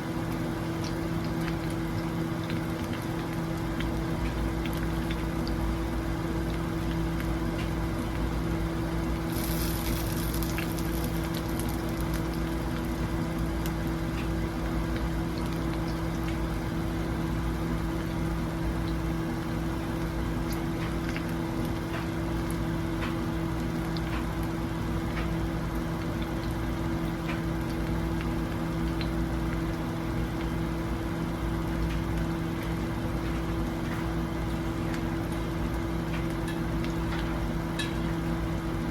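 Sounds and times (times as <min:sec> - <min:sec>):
food sizzling in a pan: 0:09.1 - 0:13.5
bright loud hiss: 0:09.3 - 0:11.7.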